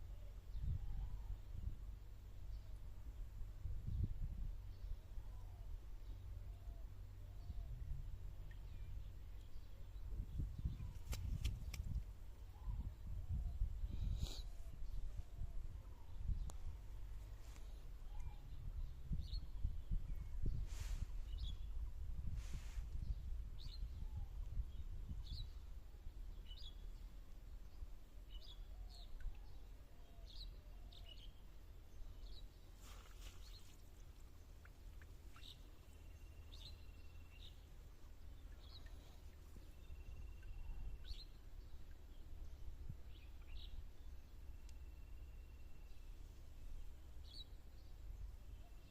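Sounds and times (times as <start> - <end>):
low rumbling background noise: 0.0 - 33.1
thin bird whistles: 18.0 - 18.6
bird chirping: 35.3 - 42.2.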